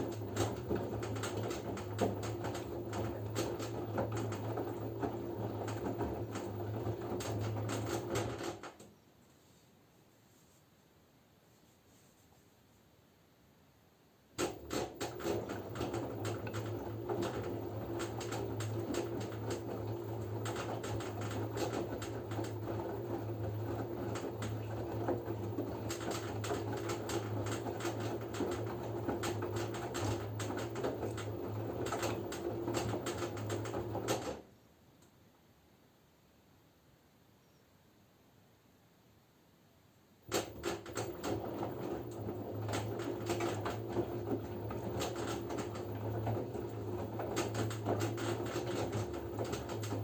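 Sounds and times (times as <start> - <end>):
washing machine motor hum: 0.0 - 8.9, 14.4 - 34.5, 40.2 - 50.0.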